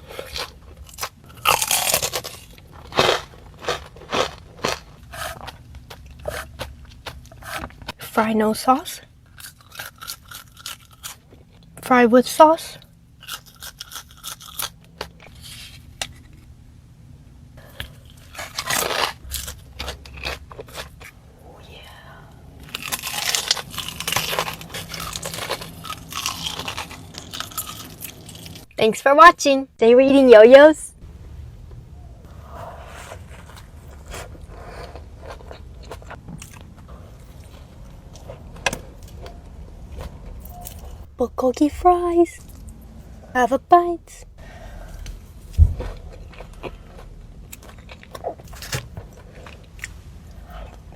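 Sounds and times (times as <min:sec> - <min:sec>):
crunching bites of fries: 0:00.0 - 0:07.6, 0:09.2 - 0:11.8, 0:12.9 - 0:16.5, 0:17.7 - 0:21.2, 0:22.6 - 0:28.7, 0:33.2 - 0:39.4, 0:45.0 - 0:50.0.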